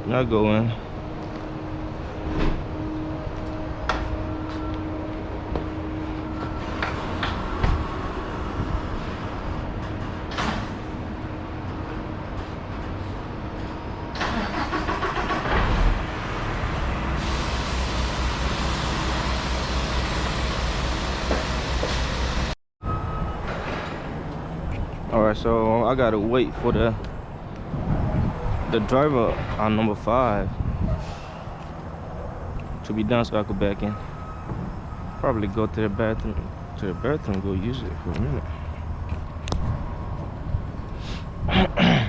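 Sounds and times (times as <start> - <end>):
truck engine running: 13.2 - 22.6.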